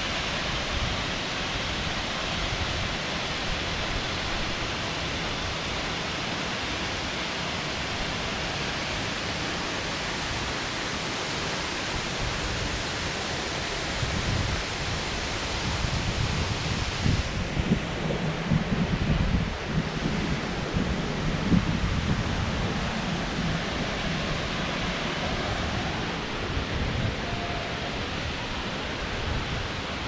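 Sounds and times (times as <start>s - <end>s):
waterfall rushing: 0.0s - 30.0s
wind buffeting microphone: 13.9s - 30.0s.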